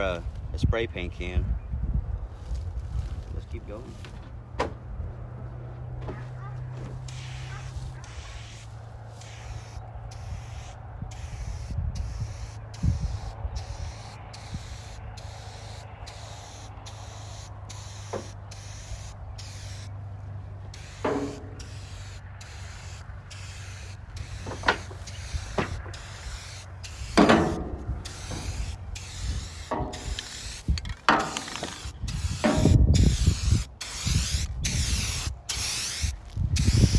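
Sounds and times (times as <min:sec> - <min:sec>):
aerosol spray paint hissing: 0:07.0 - 0:19.9, 0:20.7 - 0:36.9.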